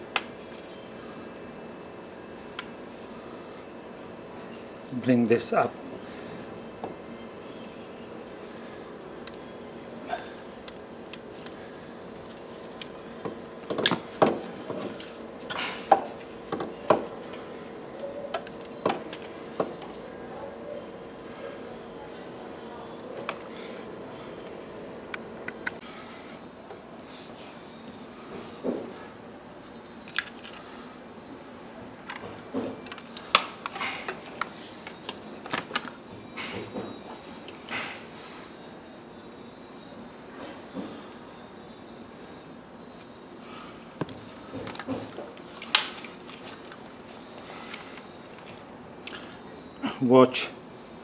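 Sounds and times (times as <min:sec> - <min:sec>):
parts and tools clicking and knocking: 0:12.7 - 0:17.1
tools clicking and knocking: 0:13.7 - 0:14.5.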